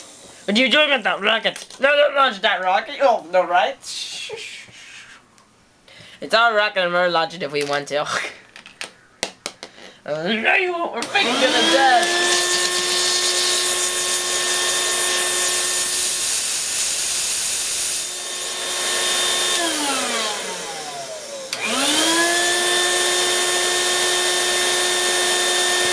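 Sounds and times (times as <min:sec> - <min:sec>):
vacuum cleaner motor whining: 0:11.0 - 0:25.9.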